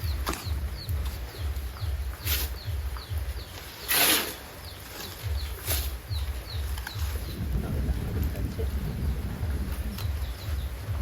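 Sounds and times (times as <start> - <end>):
bird chirping: 0.0 - 11.0
brief scraping noises: 3.8 - 4.4
low pulsing rumble: 5.2 - 11.0.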